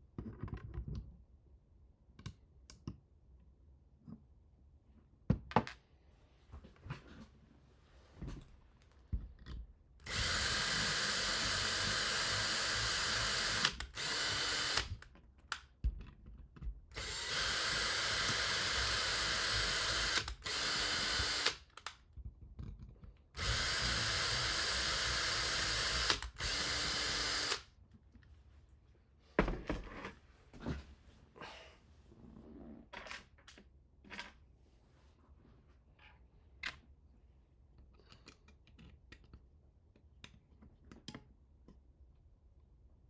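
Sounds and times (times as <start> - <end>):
power drill running: 10.1 - 15.0, 17.0 - 21.8, 23.4 - 27.6.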